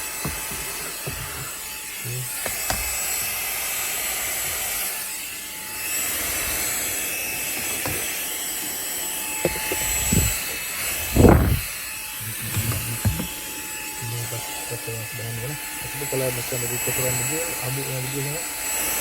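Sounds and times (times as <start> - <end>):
handheld vacuum whining: 0.0 - 19.0
nozzle knocking and scraping: 0.2 - 1.6, 9.4 - 13.6.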